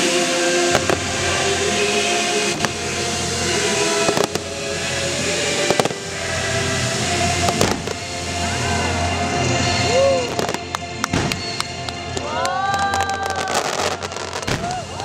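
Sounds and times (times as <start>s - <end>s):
continuous dense noise: 0.0s - 15.0s
fireworks bangs: 0.7s - 1.5s, 3.7s - 8.7s, 9.6s - 15.0s.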